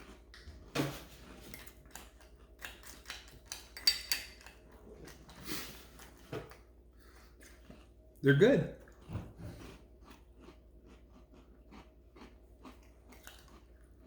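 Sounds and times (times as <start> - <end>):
spoons clinking against bowls: 3.7 - 4.5.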